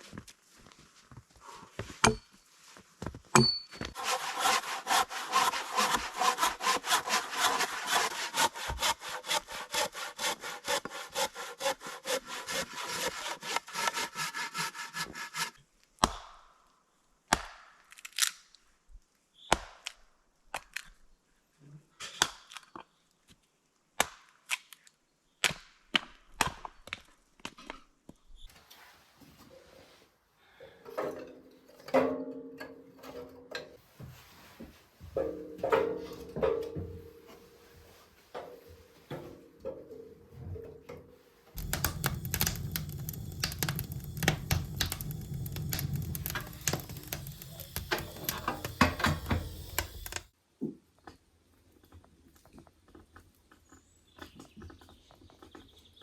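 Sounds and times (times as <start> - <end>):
hand saw cutting wood: 3.8 - 15.6, 41.6 - 50.3
knocks and clicks: 41.6 - 50.3.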